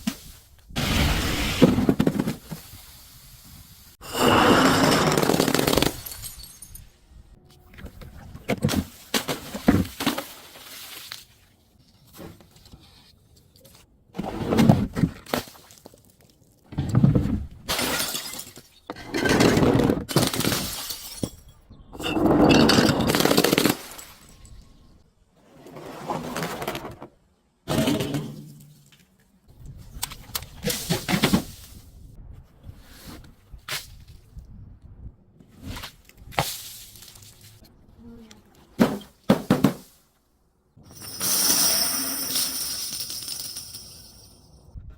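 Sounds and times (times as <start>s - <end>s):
glass breaking and crunching: 4.5s - 7.0s, 17.7s - 19.3s, 20.1s - 24.6s.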